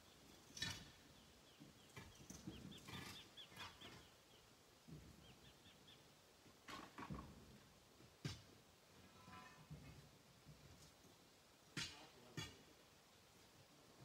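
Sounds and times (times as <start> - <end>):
small bird chirping: 0.0 - 4.6, 5.2 - 6.1.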